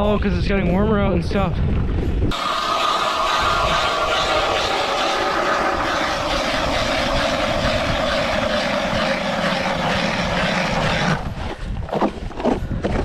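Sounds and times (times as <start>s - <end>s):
ice auger drilling: 2.3s - 12.0s.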